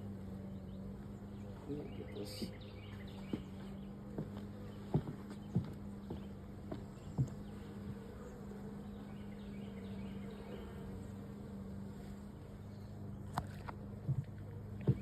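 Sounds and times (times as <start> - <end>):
honeybees buzzing: 0.0 - 15.0
light knocks: 2.3 - 8.0.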